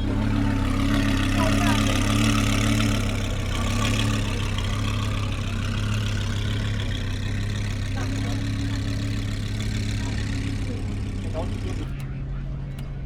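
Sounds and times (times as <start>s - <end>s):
car engine idling: 0.0s - 13.0s
crowd chatter: 0.0s - 13.0s.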